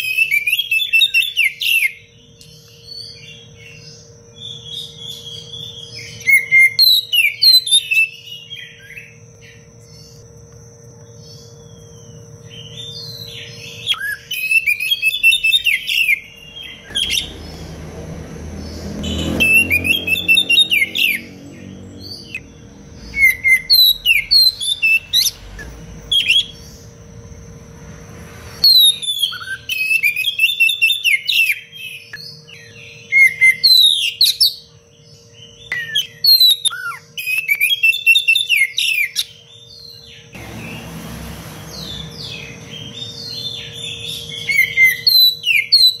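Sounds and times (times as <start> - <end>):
bird singing varied phrases: 0.0 - 10.4, 11.1 - 27.1, 28.6 - 40.8, 41.7 - 46.0
faint steady hum: 0.0 - 19.1
low rumbling noise: 16.4 - 28.6.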